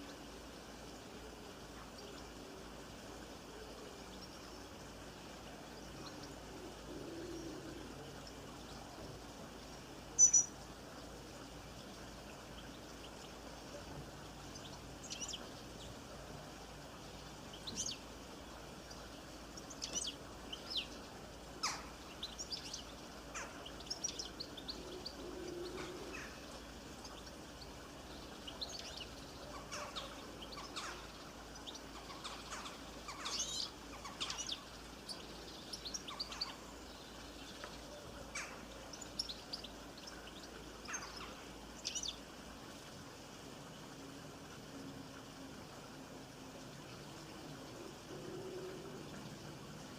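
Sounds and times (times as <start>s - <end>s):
faint background hiss: 0.0s - 49.9s
birds chirping: 3.6s - 42.9s.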